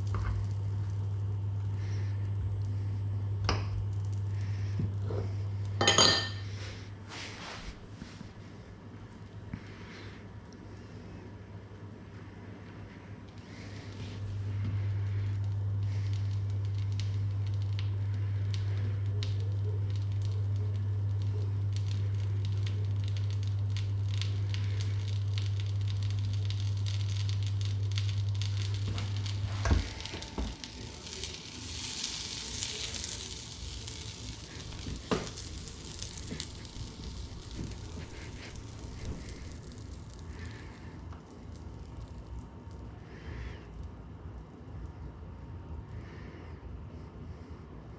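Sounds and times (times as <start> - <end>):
food sizzling in a pan: 0.0 - 7.8, 22.0 - 42.8
steady low hum: 0.0 - 47.9.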